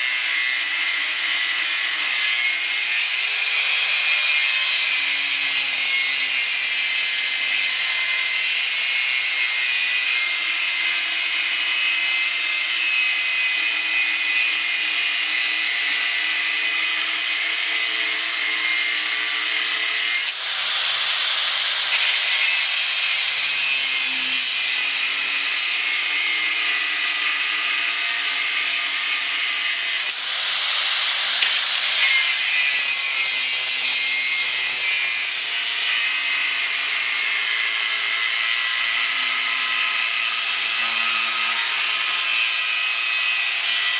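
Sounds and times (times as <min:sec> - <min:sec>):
power tool hissing on steel: 0:14.8 - 0:43.9.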